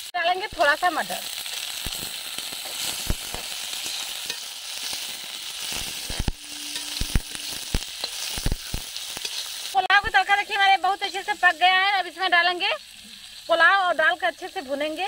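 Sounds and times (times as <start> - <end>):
vegetables sizzling in oil: 0.0 - 15.0
metal ladle scraping a pan: 1.4 - 9.8.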